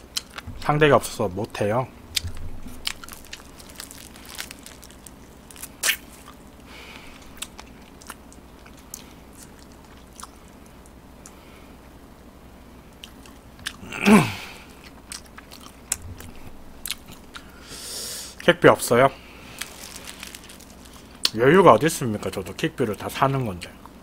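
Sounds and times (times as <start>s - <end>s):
chewing crispy fried chicken: 2.2s - 11.4s, 12.9s - 13.8s, 14.6s - 17.6s, 19.3s - 21.9s.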